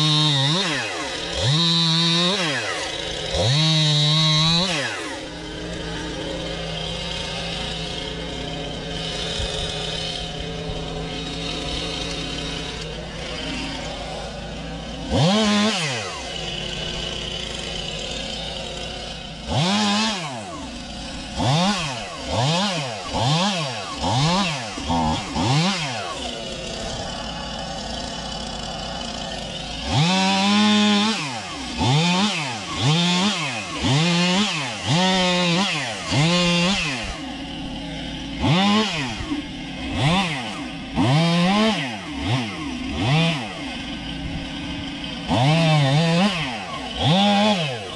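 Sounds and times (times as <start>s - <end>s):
chainsaw idling and revving: 0.0s - 47.9s.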